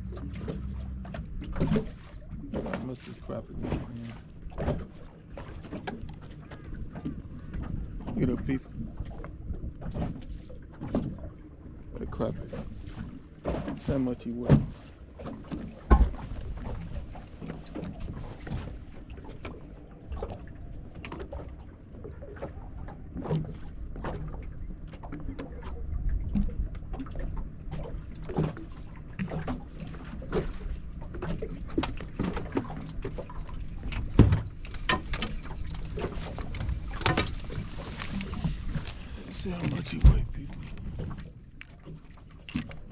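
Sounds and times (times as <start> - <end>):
wind rumbling on microphone: 0.0 - 13.8, 14.5 - 41.2
handling knocks and clicks: 34.0 - 39.0.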